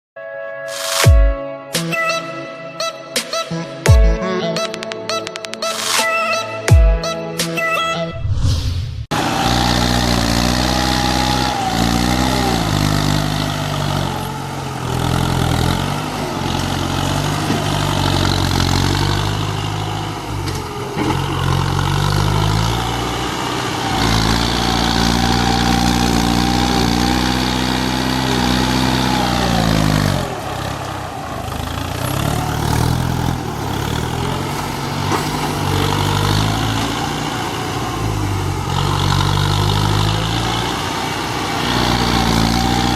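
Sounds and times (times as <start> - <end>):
tractor diesel engine revving: 9.1 - 42.9.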